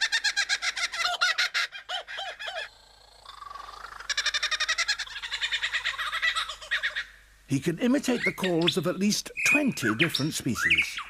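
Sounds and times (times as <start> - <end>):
lyrebird singing mimicked song: 3.3 - 11.0.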